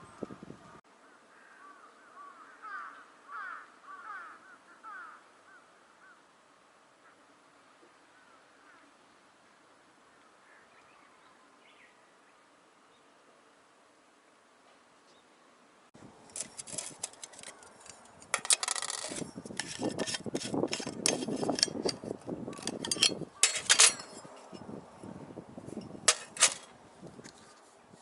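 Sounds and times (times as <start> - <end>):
rustling: 16.2 - 24.6, 25.7 - 28.0
gear clicking and clattering: 16.3 - 24.3, 26.1 - 26.7.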